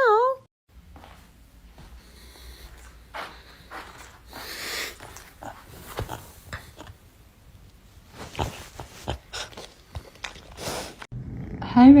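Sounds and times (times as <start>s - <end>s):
animal breathy noises: 4.3s - 6.9s, 8.2s - 11.1s.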